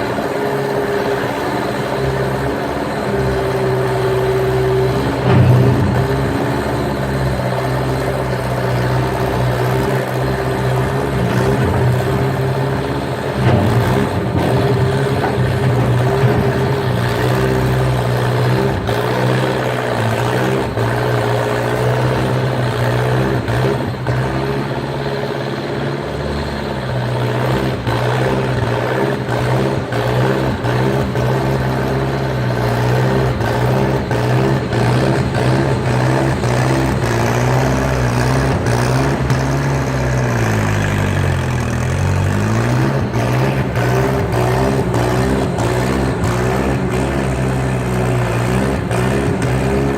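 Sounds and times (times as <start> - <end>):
skid steer engine running: 0.0 - 49.9
short knocks: 4.0 - 8.2, 11.2 - 18.7.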